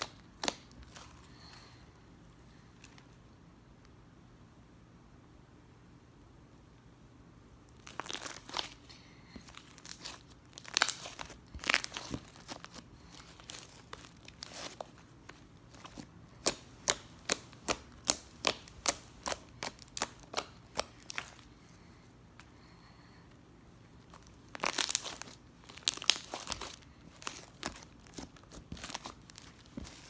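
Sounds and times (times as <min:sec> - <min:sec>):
slime crackling and popping: 0:00.0 - 0:01.1, 0:07.8 - 0:08.8, 0:09.4 - 0:14.9, 0:15.7 - 0:21.4, 0:24.1 - 0:30.0.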